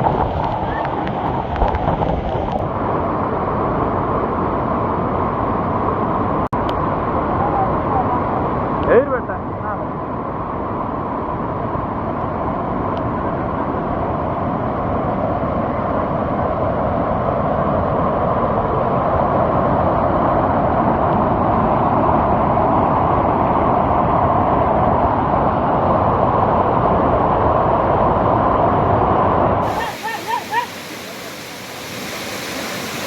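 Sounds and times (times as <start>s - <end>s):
large waterfall rushing: 29.6s - 33.0s.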